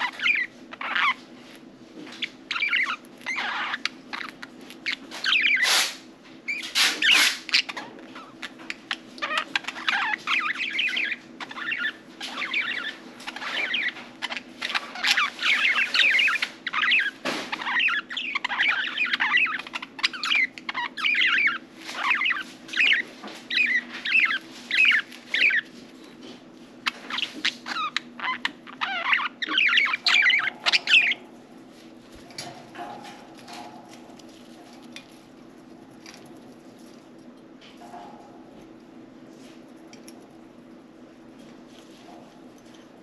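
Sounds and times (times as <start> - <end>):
budgerigars chirping: 0.0 - 1.2, 2.1 - 25.7, 26.8 - 31.3
faint steady hum: 0.0 - 43.0.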